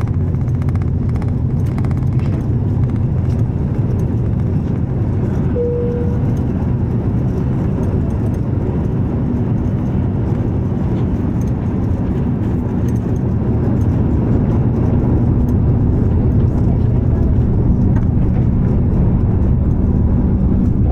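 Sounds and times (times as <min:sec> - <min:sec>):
jet engines at takeoff thrust: 0:00.0 - 0:20.9
brief steady tone: 0:05.5 - 0:06.4.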